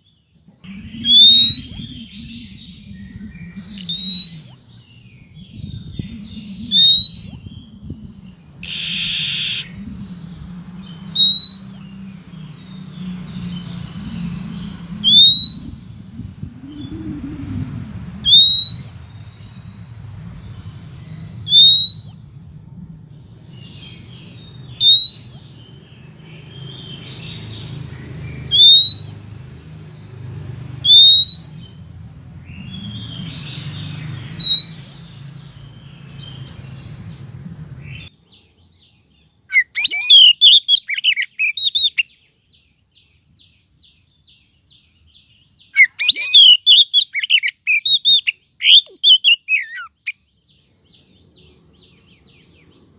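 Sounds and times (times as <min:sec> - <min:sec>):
low hum: 0:00.6 - 0:24.9
bird rapid twittering: 0:00.6 - 0:38.1, 0:39.5 - 0:42.1, 0:45.6 - 0:50.7
bird rising whistles: 0:00.9 - 0:04.6, 0:06.1 - 0:07.6, 0:08.6 - 0:09.8, 0:11.1 - 0:11.9, 0:15.0 - 0:17.5, 0:18.2 - 0:19.0, 0:21.4 - 0:22.4, 0:24.8 - 0:25.5, 0:34.4 - 0:35.1.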